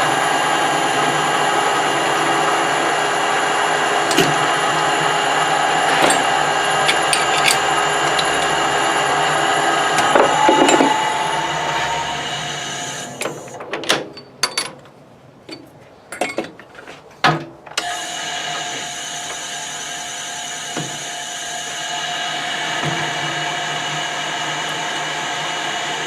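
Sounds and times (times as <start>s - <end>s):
machine tool motor humming: 0.0s - 13.6s
clicks and knocks of parts handled: 5.9s - 8.6s.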